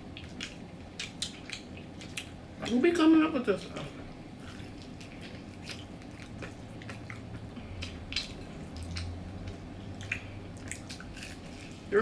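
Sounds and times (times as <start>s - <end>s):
chewing crunchy food: 0.0s - 12.0s
wet mouth clicks: 7.8s - 11.4s.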